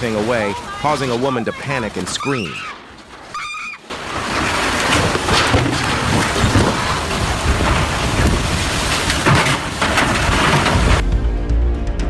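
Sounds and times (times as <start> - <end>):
storm wind buffeting microphone: 4.0 - 11.0.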